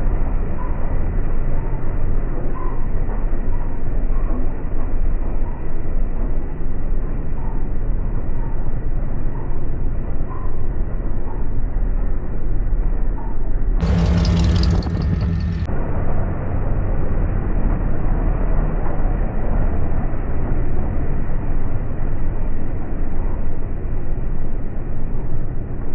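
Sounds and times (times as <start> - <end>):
pickup truck engine rumbling: 13.8 - 15.9.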